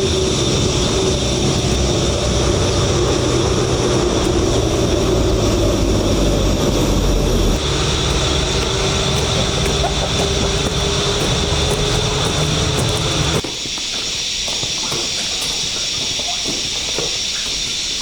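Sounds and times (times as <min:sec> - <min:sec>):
engine running: 0:00.0 - 0:13.4.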